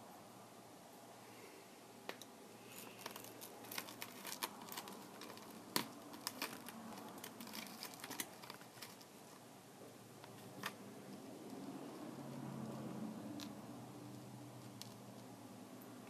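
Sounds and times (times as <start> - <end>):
small tools clicking: 2.1 - 9.1.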